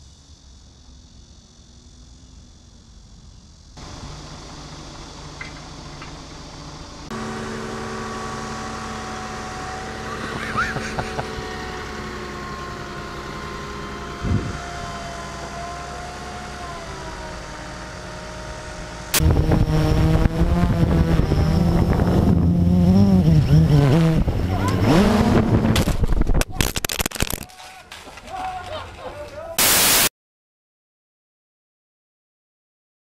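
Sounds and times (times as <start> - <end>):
drone propellers whining: 3.8 - 26.4.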